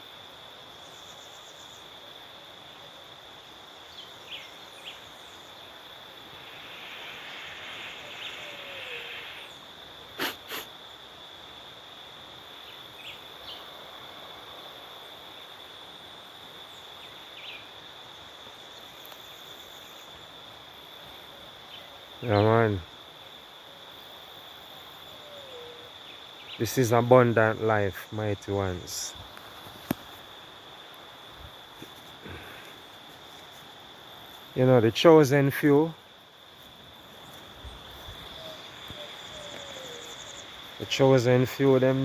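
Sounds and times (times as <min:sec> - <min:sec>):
high-pitched insect chorus: 0:00.0 - 0:42.0
hiss: 0:06.1 - 0:10.8.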